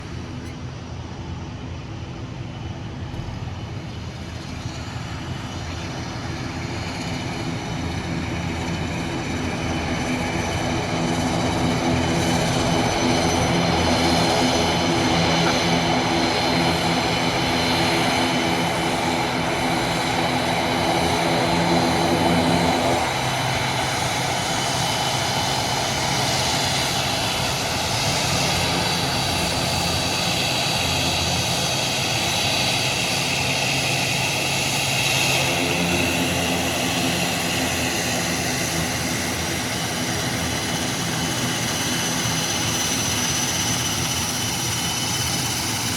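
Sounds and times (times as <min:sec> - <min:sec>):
airliner engines at taxi power: 0:00.0 - 0:45.9.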